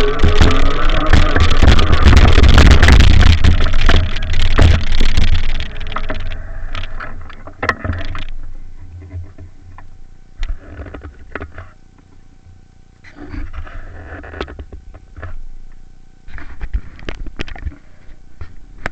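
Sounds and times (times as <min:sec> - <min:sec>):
bike rattling and knocking: 0:00.0 - 0:06.9
wind rumble on microphone: 0:00.0 - 0:07.4
scattered clicks: 0:00.0 - 0:08.4.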